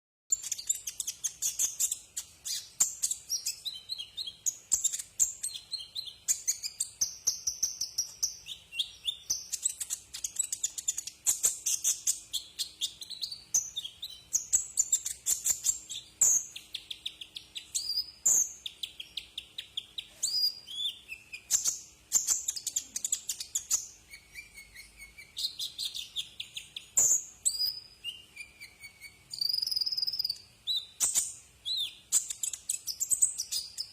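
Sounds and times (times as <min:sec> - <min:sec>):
bird twittering song: 0:00.3 - 0:33.9.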